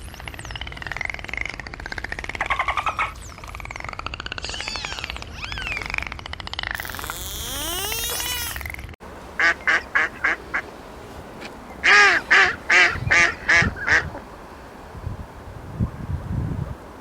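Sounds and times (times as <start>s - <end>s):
animal calling: 2.4s - 15.0s.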